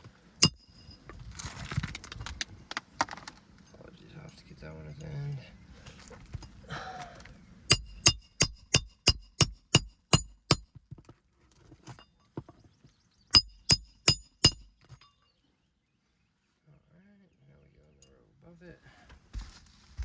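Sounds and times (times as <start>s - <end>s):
hammer striking roofing nails: 0.4s - 0.9s, 7.7s - 10.8s, 13.4s - 14.9s.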